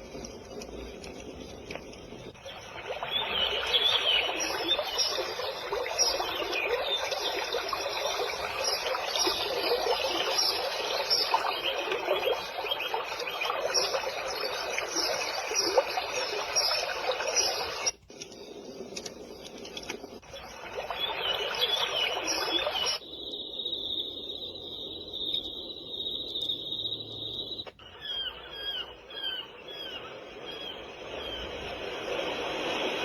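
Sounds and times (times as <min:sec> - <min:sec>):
small chirps: 0:00.0 - 0:33.0
babbling water: 0:02.4 - 0:18.0, 0:20.2 - 0:23.0.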